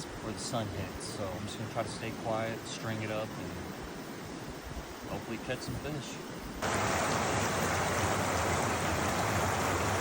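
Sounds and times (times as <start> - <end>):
river water rushing: 6.6 - 10.0.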